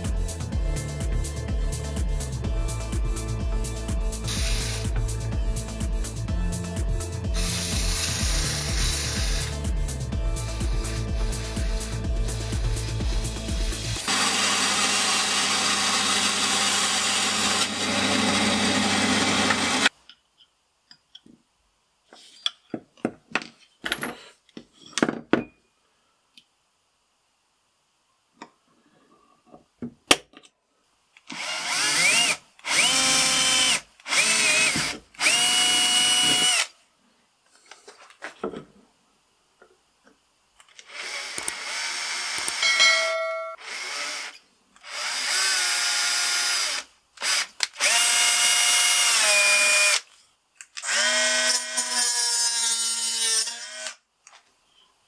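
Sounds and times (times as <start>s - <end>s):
cordless drill whining: 4.3s - 5.0s, 7.3s - 9.6s, 14.0s - 19.9s, 31.3s - 36.7s, 40.8s - 42.6s, 43.6s - 50.0s
band saw cutting wood: 7.3s - 9.6s, 10.4s - 19.9s.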